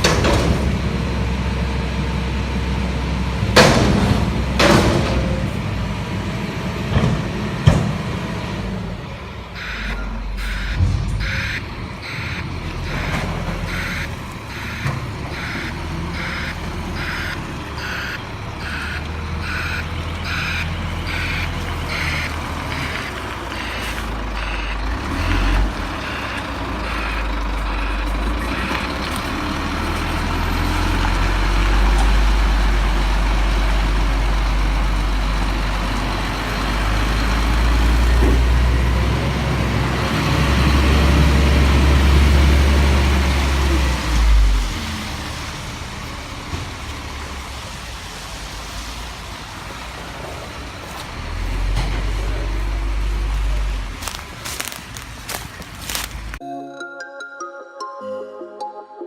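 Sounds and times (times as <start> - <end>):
diesel engine running: 0.0 - 56.4
reversing alarm beeping: 9.5 - 29.0.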